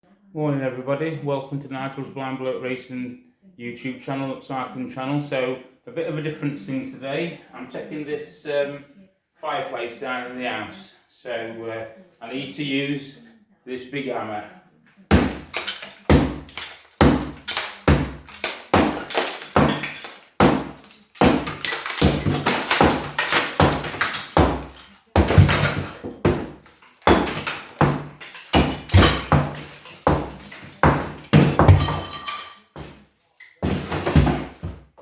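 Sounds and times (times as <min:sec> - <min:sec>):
bricks crumbling: 0:15.1 - 0:34.9
hammer striking bricks: 0:15.1 - 0:34.9.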